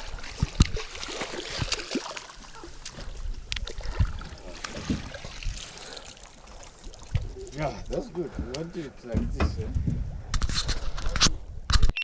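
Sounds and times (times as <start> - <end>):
water lapping and trickling: 0.0 - 11.5
knocks on boat: 9.1 - 10.0.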